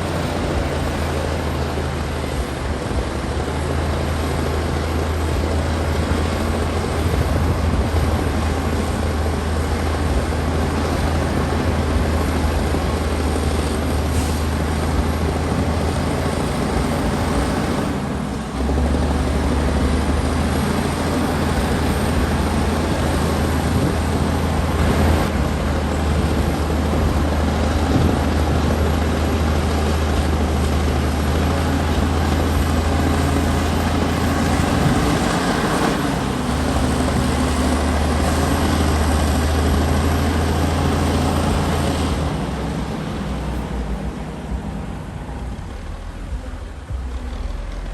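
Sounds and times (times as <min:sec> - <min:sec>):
bulldozer diesel engine running: 0:00.0 - 0:47.9.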